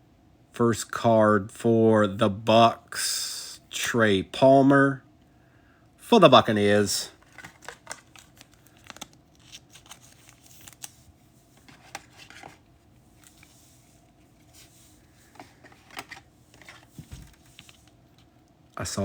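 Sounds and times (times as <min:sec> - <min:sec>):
trading cards rustling: 0:06.8 - 0:18.4.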